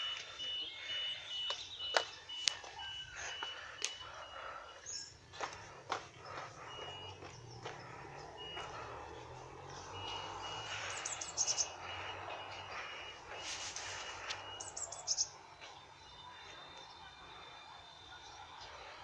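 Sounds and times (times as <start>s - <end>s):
songbird singing high notes: 7.5s - 17.0s.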